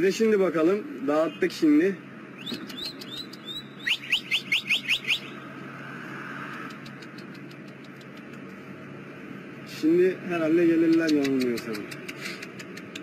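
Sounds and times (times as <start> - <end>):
outdoor background hiss: 0.0 - 13.0
bird chirping: 1.0 - 5.5.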